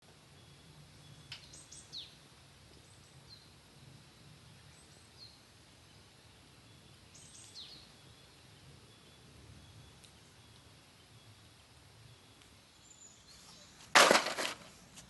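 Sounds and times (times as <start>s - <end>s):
birds chirping: 4.2s - 15.0s.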